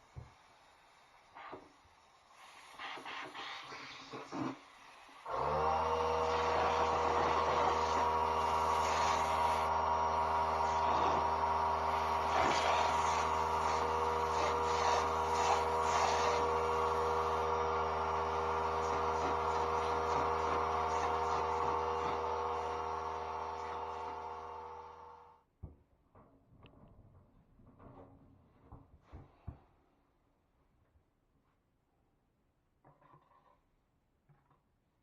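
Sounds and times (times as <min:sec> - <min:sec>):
motor humming: 0:05.3 - 0:25.4
scratchy noise: 0:12.3 - 0:17.0.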